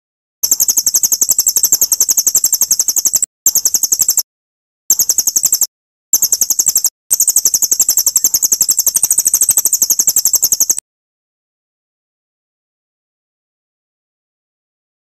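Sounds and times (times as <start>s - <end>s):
fast high-pitched songbird trill: 0.4s - 4.3s, 4.9s - 10.8s.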